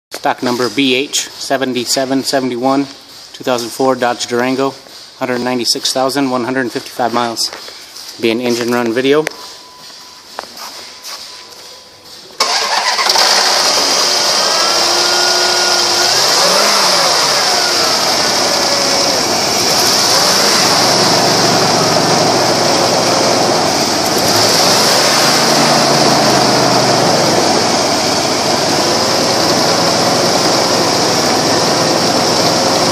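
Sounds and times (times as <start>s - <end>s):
car engine starting and running: 12.4s - 32.9s.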